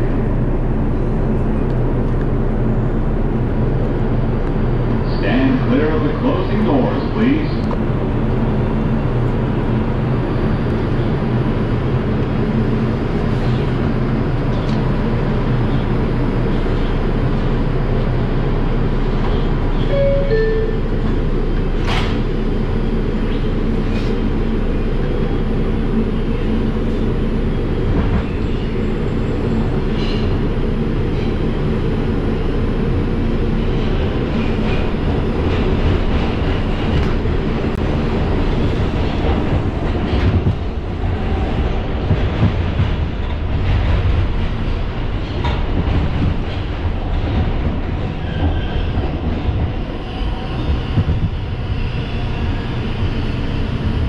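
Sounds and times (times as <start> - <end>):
subway wheels rumbling on rails: 0.0 - 54.0.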